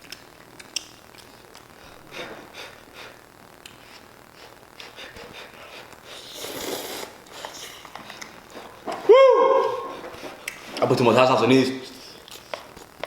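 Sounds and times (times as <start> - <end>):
slurping noodles: 6.0 - 7.9.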